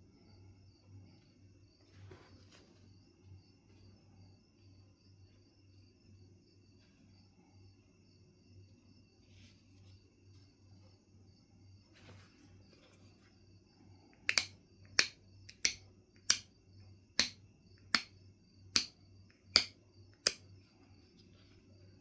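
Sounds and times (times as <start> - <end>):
flint knapping clicks: 14.2 - 16.5, 17.2 - 18.1, 18.7 - 20.4.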